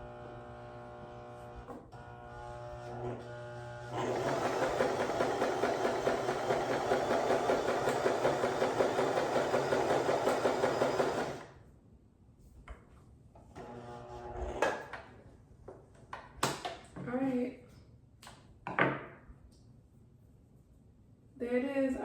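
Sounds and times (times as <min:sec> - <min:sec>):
sewing machine stitching: 0:03.8 - 0:11.5.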